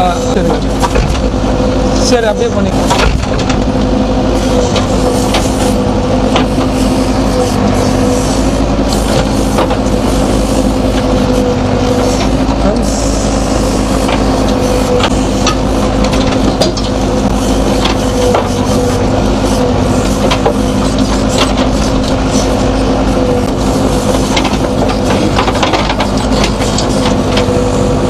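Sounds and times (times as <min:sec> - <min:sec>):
diesel engine running: 0:00.0 - 0:28.0
machine clicks knocks and rattles: 0:00.5 - 0:01.3, 0:02.8 - 0:03.9, 0:09.0 - 0:10.0, 0:14.1 - 0:18.6, 0:20.0 - 0:22.2, 0:23.7 - 0:27.6.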